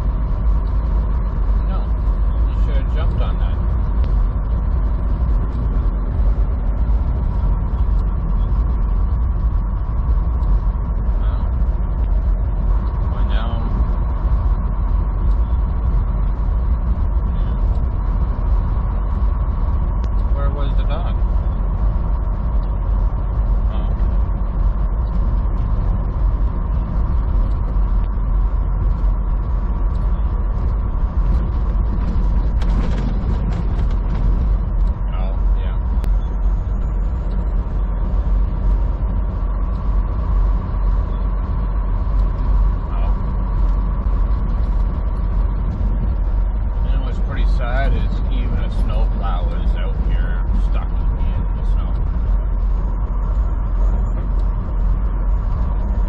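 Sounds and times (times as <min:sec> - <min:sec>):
diesel engine drone: 0:00.0 - 0:56.0
faint steady whine: 0:00.0 - 0:56.0
road noise: 0:00.0 - 0:56.0
cab rattles and creaks: 0:29.9 - 0:38.7.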